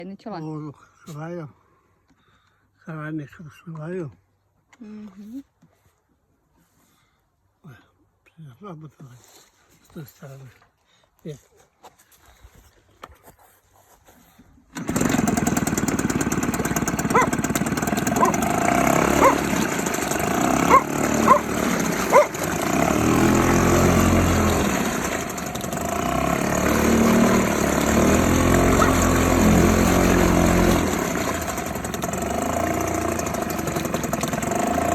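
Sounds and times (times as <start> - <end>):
outboard boat motor running: 14.8 - 34.9.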